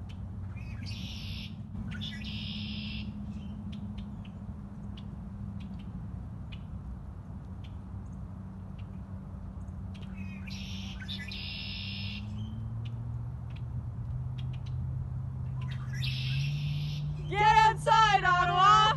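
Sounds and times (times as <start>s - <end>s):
low steady hum: 0.0s - 18.9s
buzzy high-pitched bird calls: 0.6s - 3.5s, 10.2s - 12.5s, 15.6s - 17.4s
loud wavering pitched call: 0.8s - 3.2s, 10.5s - 12.3s, 15.8s - 18.9s.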